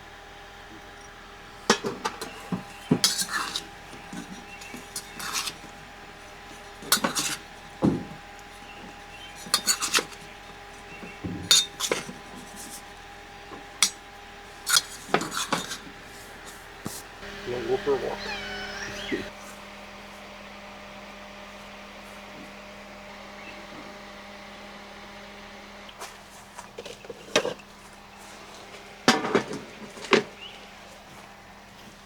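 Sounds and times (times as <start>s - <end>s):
cutlery and dishes clattering: 1.7s - 5.8s, 6.4s - 12.9s, 14.7s - 16.0s.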